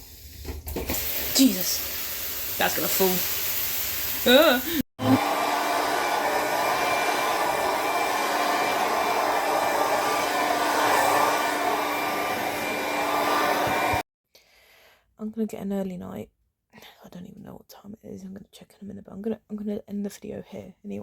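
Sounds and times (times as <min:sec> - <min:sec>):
hair dryer blowing: 0:00.8 - 0:14.1.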